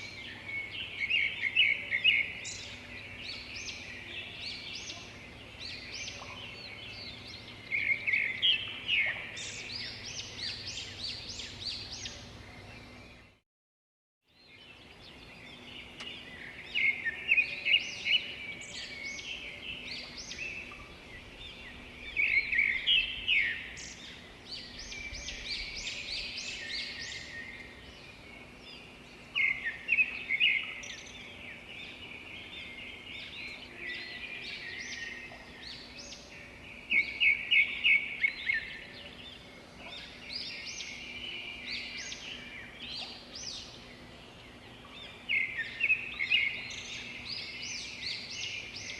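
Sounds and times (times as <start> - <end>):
faint steady hum: 14.4 - 48.9.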